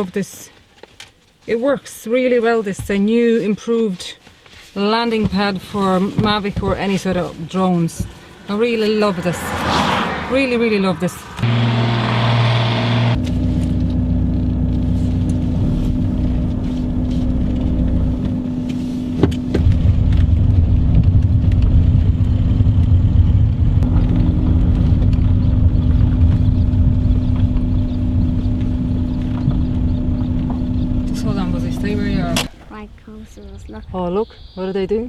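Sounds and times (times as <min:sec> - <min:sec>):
drone propellers humming: 0:08.1 - 0:32.8
wind rumbling on microphone: 0:13.7 - 0:32.5.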